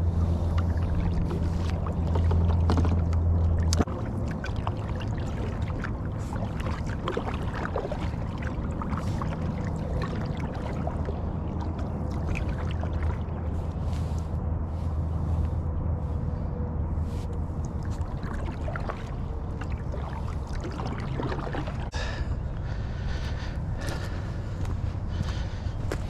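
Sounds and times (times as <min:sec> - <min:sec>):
water splashing around kayak: 0:00.0 - 0:15.6, 0:17.0 - 0:26.0
steady low rumble: 0:00.0 - 0:26.0.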